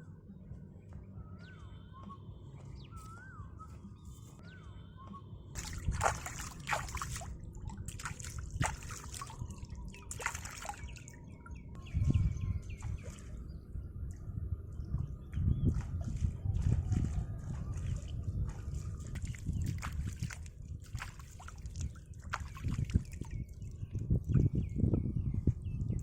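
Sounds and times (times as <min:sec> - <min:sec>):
whistled bird calls: 0:01.2 - 0:06.4
water sloshing and splashing: 0:05.6 - 0:11.8, 0:12.6 - 0:24.5.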